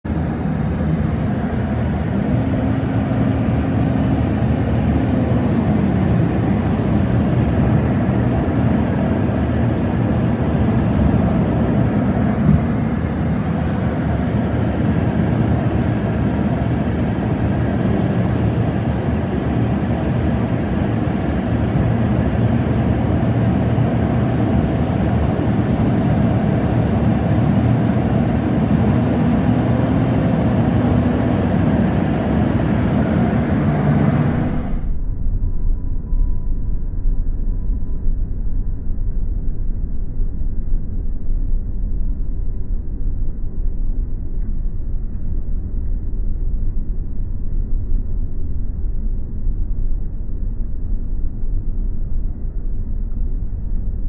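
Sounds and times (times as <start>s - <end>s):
car road and engine noise: 0.0s - 35.0s.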